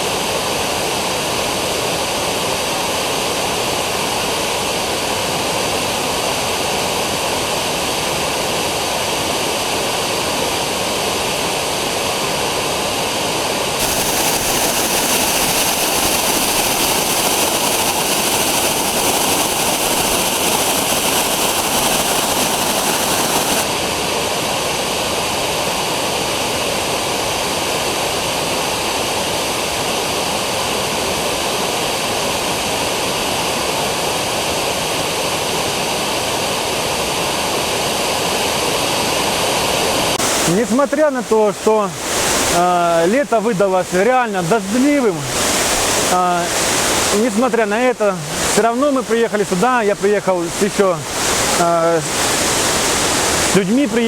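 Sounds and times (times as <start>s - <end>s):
waterfall roaring: 13.8s - 24.9s, 39.8s - 54.0s.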